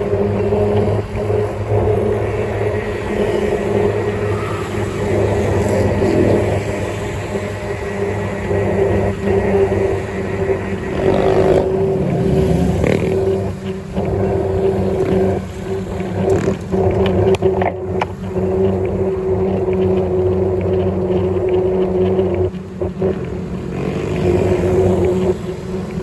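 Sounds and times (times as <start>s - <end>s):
rough rushing noise: 0.0s - 26.0s
vehicle motor running: 0.0s - 26.0s.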